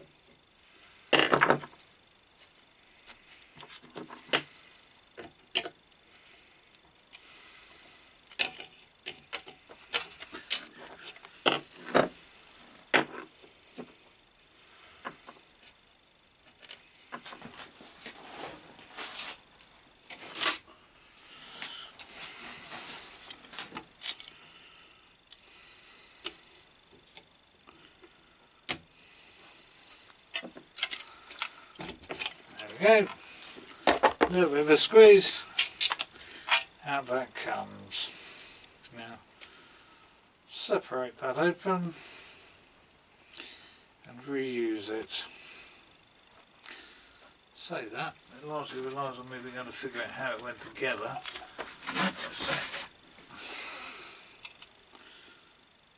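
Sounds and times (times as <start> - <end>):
rubbing and scraping: 49.5 - 53.0.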